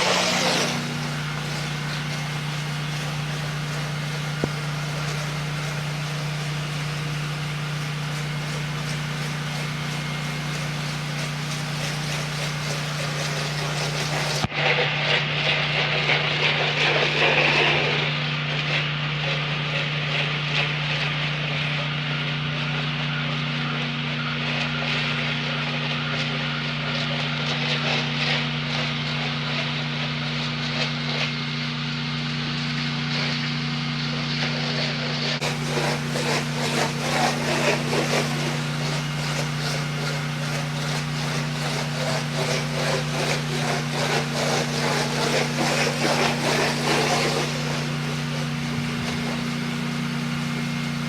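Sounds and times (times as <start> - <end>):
water spray hissing: 0.0 - 14.5, 27.8 - 51.0
pressure washer engine running: 0.0 - 51.0.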